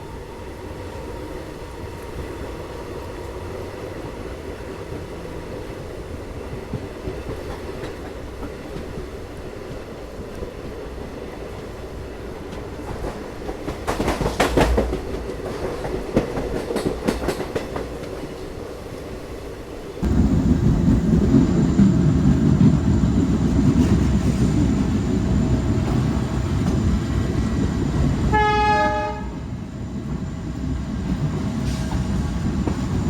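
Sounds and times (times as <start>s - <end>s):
train rumbling on rails: 0.0s - 33.0s
train wheel clicks and clatter: 12.5s - 18.4s.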